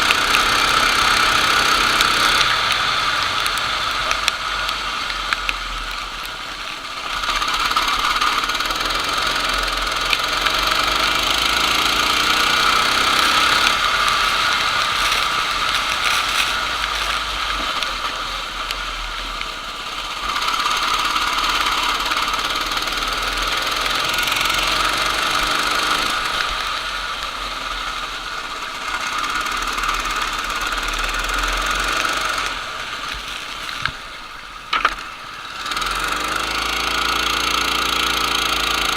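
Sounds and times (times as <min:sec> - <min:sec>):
kart engine revving: 0:00.0 - 0:38.9.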